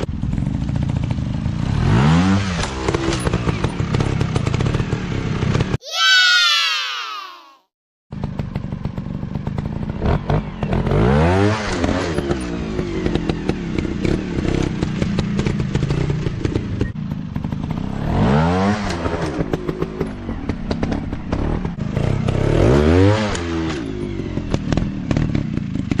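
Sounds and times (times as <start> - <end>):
dirt bike engine revving: 1.6 - 5.6, 17.4 - 25.9.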